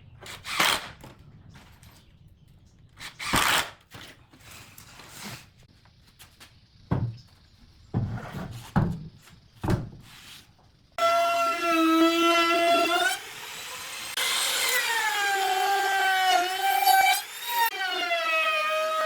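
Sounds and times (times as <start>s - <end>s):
wood knocking on a workbench: 6.9s - 7.2s
power tool motor whine: 11.0s - 19.0s.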